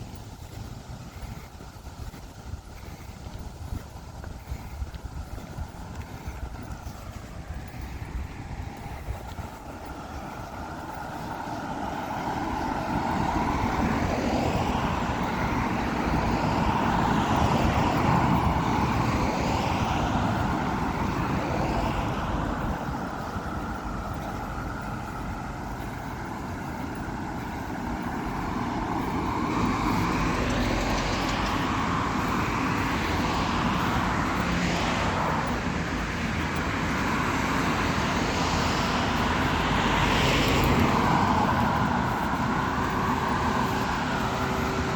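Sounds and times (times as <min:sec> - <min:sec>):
cars driving past: 0:00.0 - 0:44.9.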